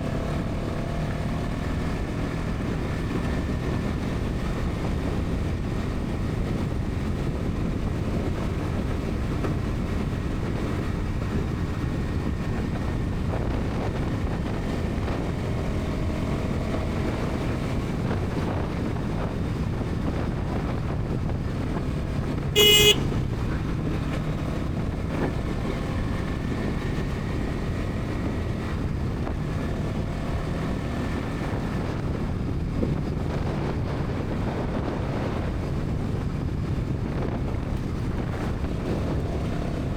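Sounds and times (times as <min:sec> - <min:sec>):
motorcycle engine cruising: 0:00.0 - 0:39.9
road and wind noise: 0:00.0 - 0:39.9
vehicle horn honk: 0:22.6 - 0:23.4.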